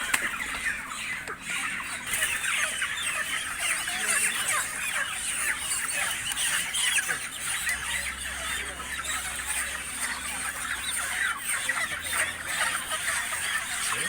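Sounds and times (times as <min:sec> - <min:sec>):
chickens clucking and squawking: 0:00.0 - 0:14.0.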